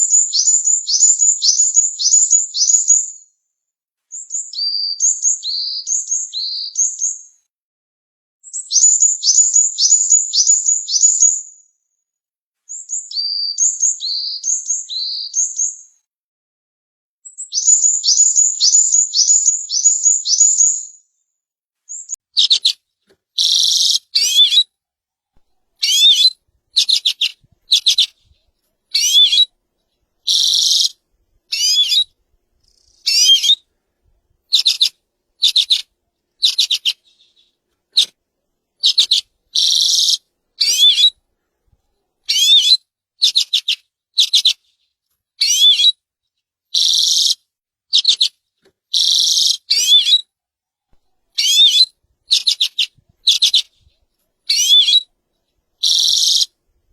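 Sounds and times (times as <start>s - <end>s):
songbird singing: 0.0s - 3.3s, 4.1s - 7.4s, 8.4s - 11.6s, 12.7s - 16.0s, 17.2s - 21.1s, 21.9s - 24.7s, 25.7s - 33.7s, 34.4s - 38.2s, 38.8s - 41.2s, 42.3s - 44.6s, 45.4s - 45.9s, 46.8s - 47.4s, 48.0s - 50.2s, 51.0s - 55.1s, 55.8s - 56.6s.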